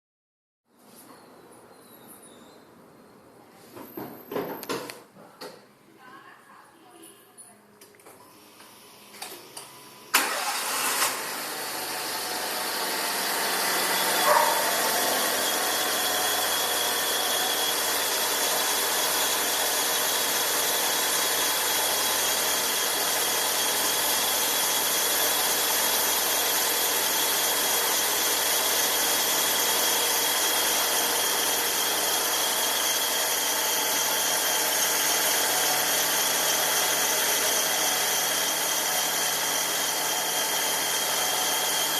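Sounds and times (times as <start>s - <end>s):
car engine starting and idling: 10.1s - 38.4s.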